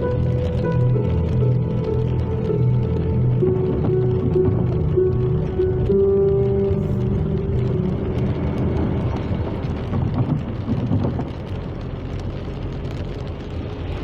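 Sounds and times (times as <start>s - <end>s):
music tones: 0.0s - 10.6s
car engine and tyre noise: 0.0s - 14.0s.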